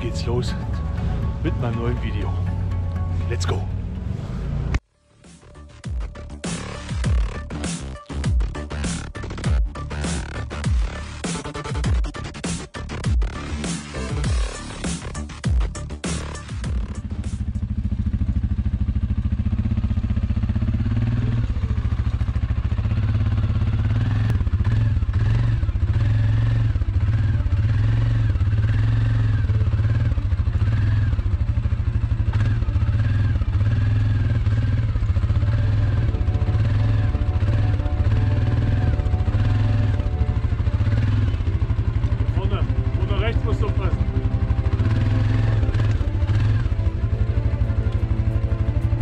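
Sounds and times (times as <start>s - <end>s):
background music with heavy bass: 0.0s - 3.9s, 4.7s - 17.9s, 34.3s - 49.0s.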